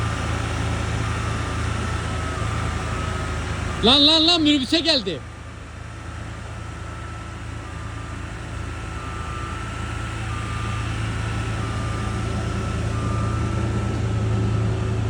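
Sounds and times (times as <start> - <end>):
low engine drone: 0.0 - 15.0
reversing alarm beeping: 0.0 - 15.0.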